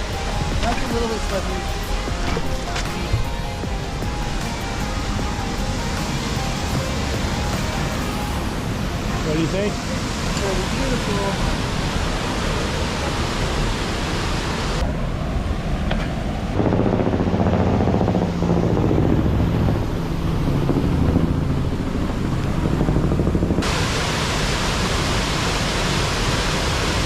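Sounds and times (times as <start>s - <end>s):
waterfall roaring: 0.0s - 22.8s, 23.5s - 27.0s.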